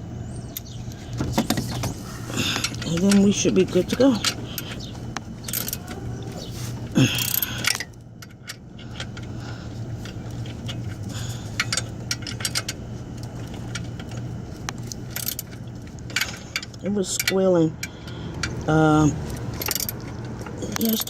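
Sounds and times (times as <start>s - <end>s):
steady low hum: 0.0s - 21.0s
hand tools clinking: 19.4s - 21.0s.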